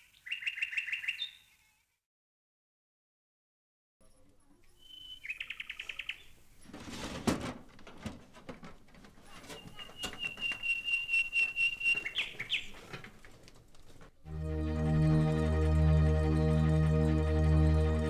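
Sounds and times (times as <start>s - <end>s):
rustling: 4.3s - 14.3s
birds trilling: 4.8s - 6.6s, 9.2s - 13.9s.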